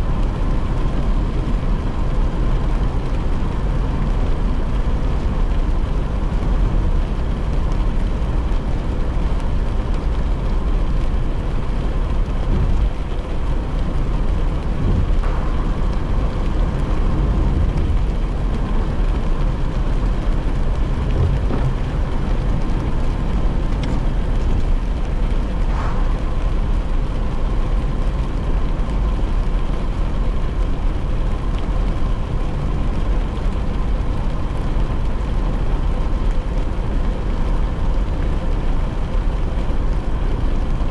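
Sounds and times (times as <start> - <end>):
car interior rumble: 0.0 - 40.9
tyres and rain hissing: 8.2 - 30.4.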